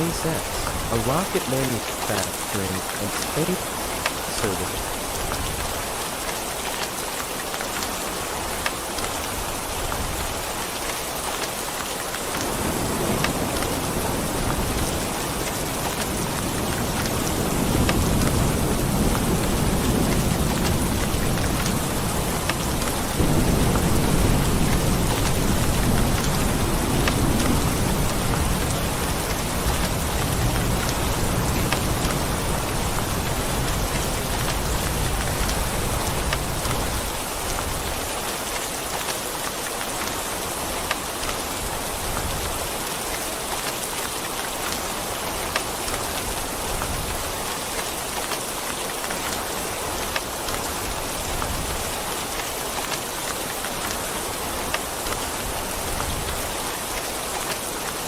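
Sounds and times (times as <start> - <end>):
steady rain falling: 0.0 - 58.0
low thunder rumble: 16.1 - 37.0.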